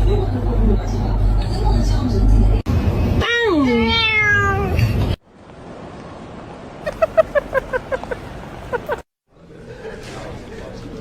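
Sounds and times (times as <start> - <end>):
cat meowing: 3.6 - 4.8.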